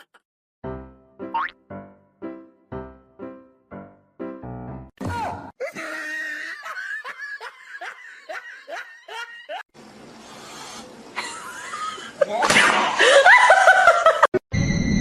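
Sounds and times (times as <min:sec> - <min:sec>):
person laughing: 0:05.6 - 0:09.6, 0:11.2 - 0:14.3.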